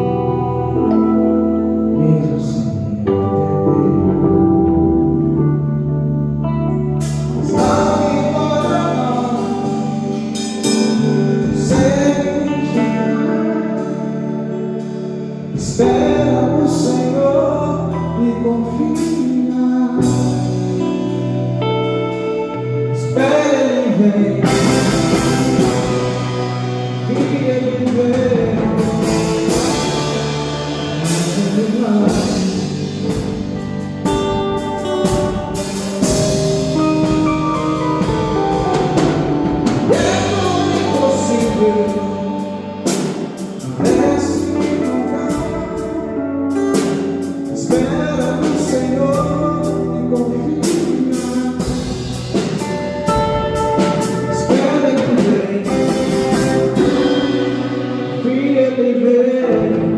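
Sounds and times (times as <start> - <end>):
slow gospel song: 0.0 - 59.9
singing over sustained chords: 23.8 - 33.8, 39.4 - 45.9.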